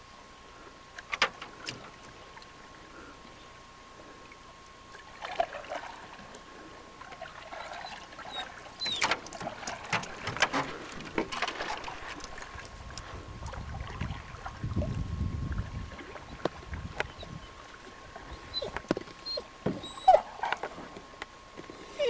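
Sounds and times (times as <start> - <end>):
faint steady whine: 0.0 - 22.0
paddles splashing in water: 4.2 - 21.2.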